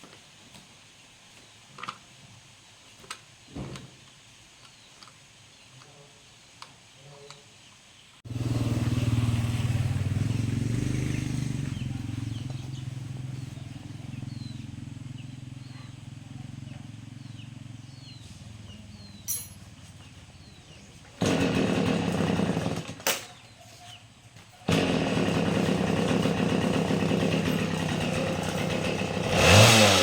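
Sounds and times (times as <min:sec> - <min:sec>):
engine rumbling: 0:08.2 - 0:30.0.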